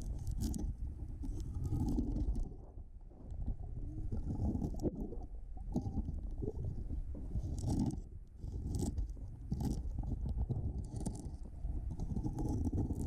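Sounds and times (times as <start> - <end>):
muffled underwater rumble: 0.0 - 13.0
regulator bubbles gurgling: 0.1 - 8.8.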